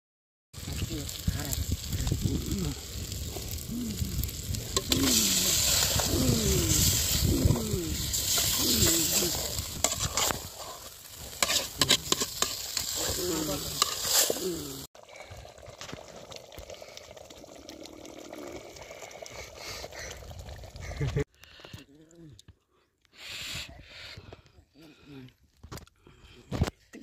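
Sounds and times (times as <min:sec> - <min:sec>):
onions and tomatoes sizzling: 0:00.6 - 0:18.9
metal ladle scraping pot: 0:04.7 - 0:14.5.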